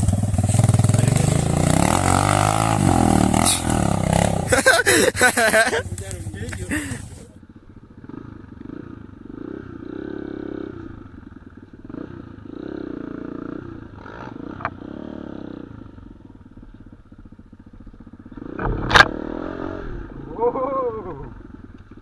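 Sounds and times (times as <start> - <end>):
motorcycle engine revving: 0.0 - 22.0
short click: 18.6 - 19.2.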